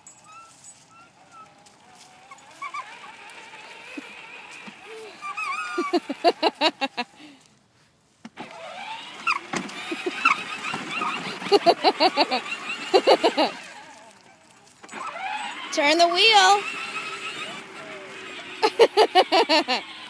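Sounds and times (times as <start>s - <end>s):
electric motor whirring in pulses: 14.9s - 20.0s.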